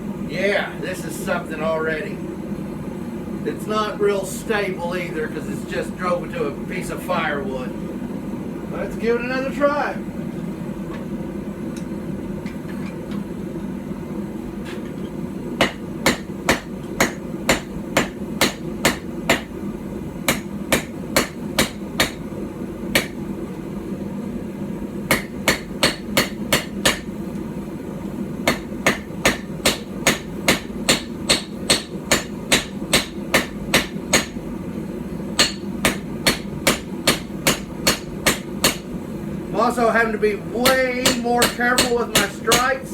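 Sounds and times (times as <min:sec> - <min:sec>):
steady low hum: 0:00.0 - 0:42.9
hammer striking hot steel on anvil: 0:15.6 - 0:19.6, 0:20.2 - 0:22.3, 0:22.9 - 0:23.2, 0:25.1 - 0:27.2, 0:28.4 - 0:34.4, 0:35.4 - 0:38.9, 0:40.6 - 0:42.8.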